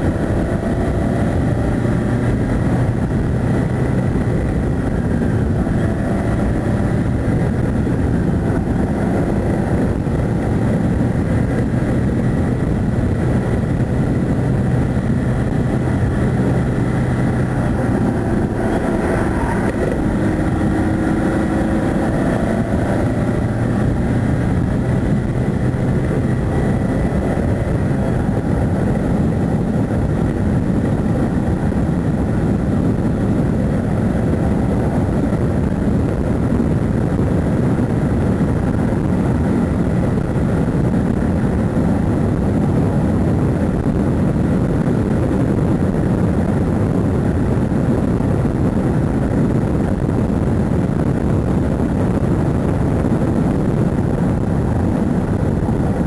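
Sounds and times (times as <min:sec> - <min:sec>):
car engine running hard: 0:00.0 - 0:56.0
road roar: 0:00.0 - 0:56.0
wind: 0:00.0 - 0:56.0.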